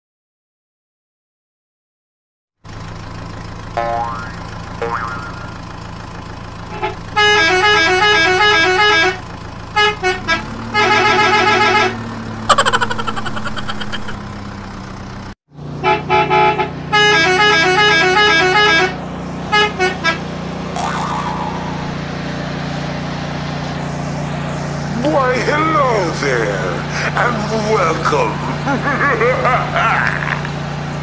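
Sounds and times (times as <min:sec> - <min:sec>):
low hum: 0:20.6 - 0:30.6.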